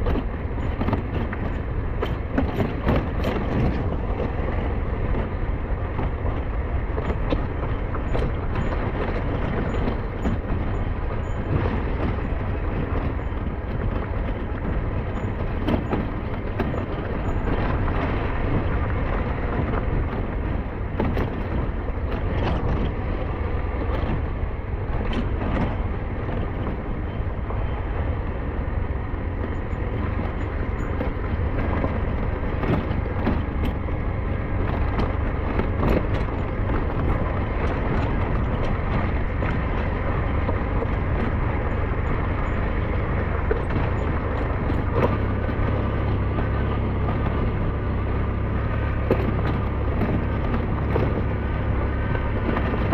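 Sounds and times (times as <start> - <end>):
motorcycle engine running: 0.0 - 52.9
wind rumble on microphone: 0.0 - 52.9.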